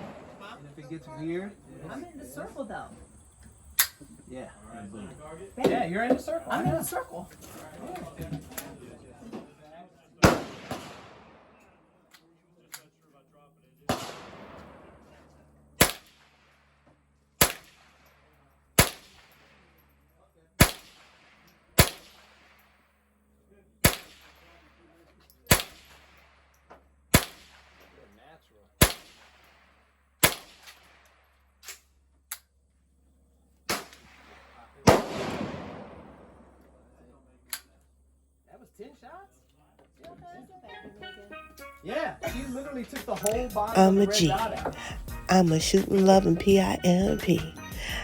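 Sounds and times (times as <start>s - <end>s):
gunshots with echoing tail: 0.0s - 0.4s, 10.2s - 11.5s, 33.7s - 36.5s.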